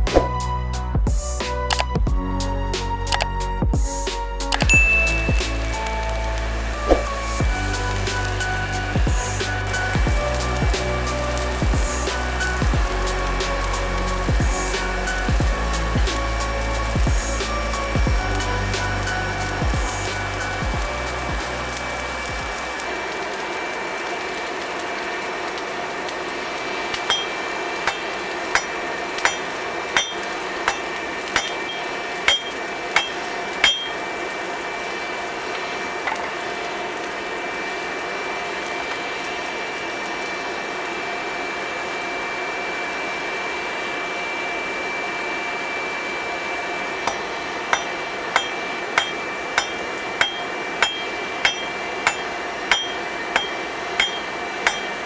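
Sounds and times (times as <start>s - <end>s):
steady rushing hiss: 0.0s - 40.9s
hammer striking steel on anvil: 1.7s - 2.0s, 4.6s - 5.7s, 27.0s - 34.2s, 36.1s - 36.3s, 47.1s - 55.0s.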